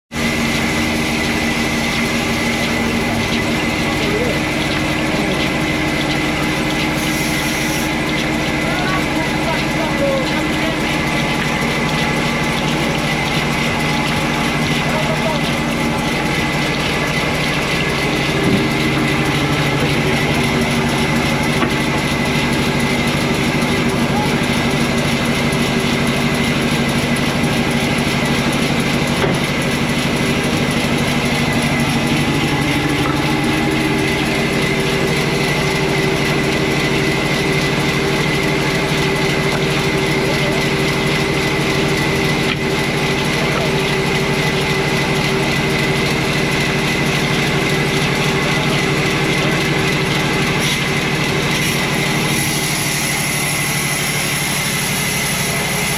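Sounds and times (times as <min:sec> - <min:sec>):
sawmill machinery hum and clatter: 0:00.1 - 0:55.9.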